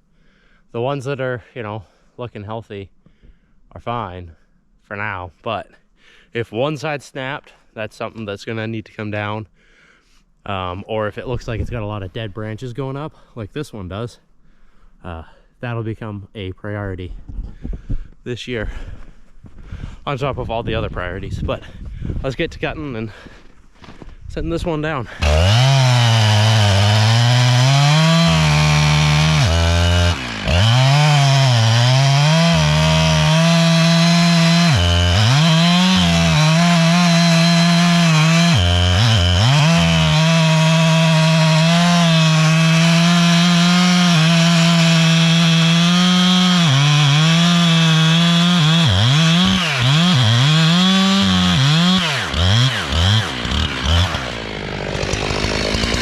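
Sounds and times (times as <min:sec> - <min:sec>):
chainsaw cutting wood: 0:25.2 - 0:56.0
chainsaw revving: 0:25.2 - 0:56.0.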